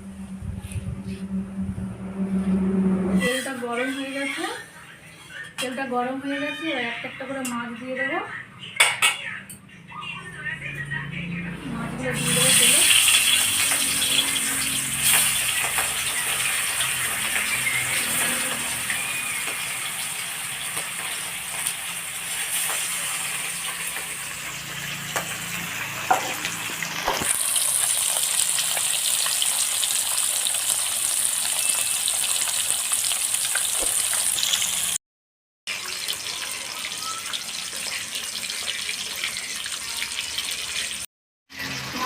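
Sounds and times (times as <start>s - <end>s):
fish sizzling in hot oil: 12.2s - 35.0s, 35.7s - 42.0s.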